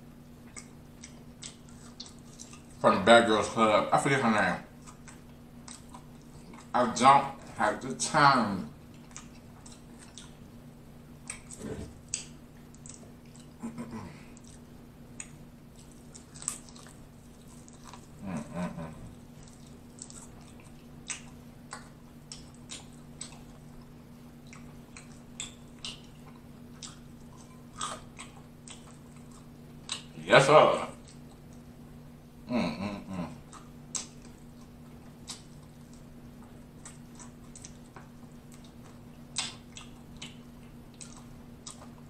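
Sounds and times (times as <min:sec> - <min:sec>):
chewing and biting: 0:00.4 - 0:02.8, 0:04.7 - 0:06.8, 0:08.8 - 0:10.5, 0:11.2 - 0:30.2, 0:30.9 - 0:31.7, 0:33.4 - 0:42.0
small crunches: 0:15.2 - 0:18.4
wet mouth clicks: 0:33.5 - 0:34.4, 0:39.4 - 0:40.4.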